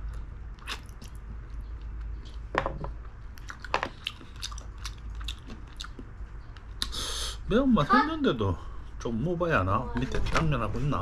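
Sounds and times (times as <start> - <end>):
person chewing food: 0.0 - 7.0
wet mouth clicks: 0.6 - 1.2.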